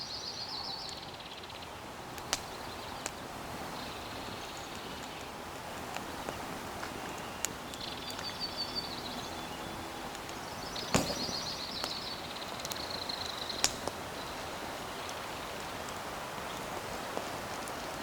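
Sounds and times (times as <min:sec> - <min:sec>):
high trilled bird calls: 0:07.3 - 0:14.5.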